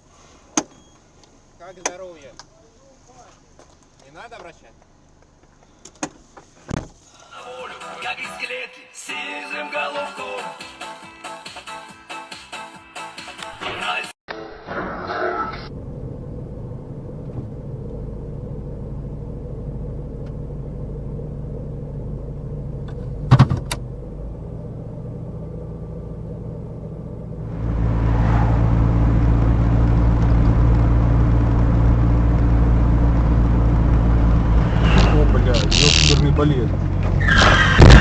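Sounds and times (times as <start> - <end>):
car engine and road noise: 0.0 - 7.2, 15.2 - 38.0.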